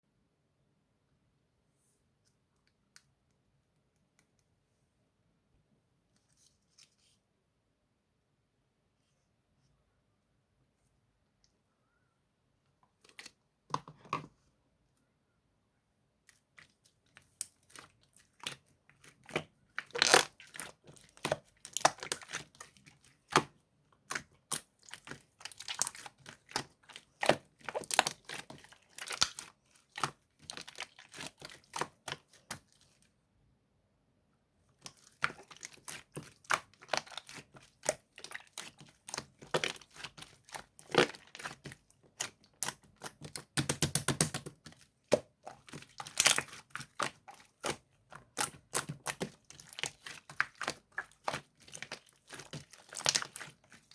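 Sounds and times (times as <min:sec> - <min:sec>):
slime squishing sticky pops: 0:24.1 - 0:32.7, 0:35.0 - 0:53.9.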